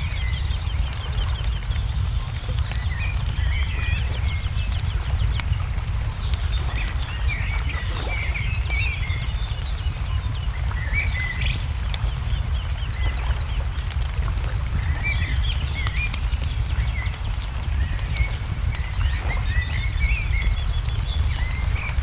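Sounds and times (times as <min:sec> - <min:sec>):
low rumble: 0:00.0 - 0:22.0
small birds chirping: 0:00.0 - 0:22.0
wood fire crackling and popping: 0:00.0 - 0:22.0.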